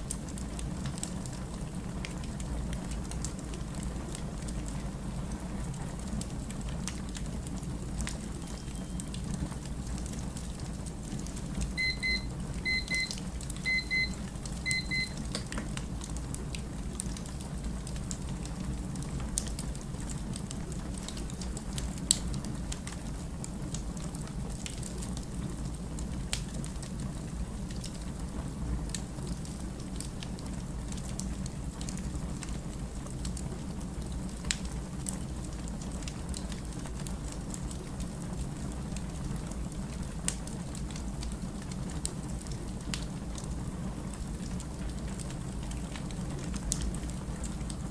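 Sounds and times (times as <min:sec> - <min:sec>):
wood fire crackling and popping: 0:00.0 - 0:47.9
electronic double beeps: 0:11.8 - 0:15.3.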